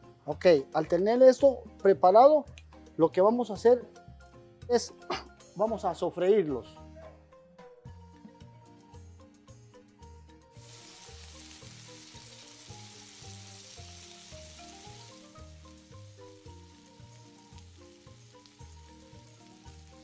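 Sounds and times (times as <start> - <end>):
background music with steady beat: 0.0 - 20.0
shrimp sizzling in oil: 10.6 - 20.0.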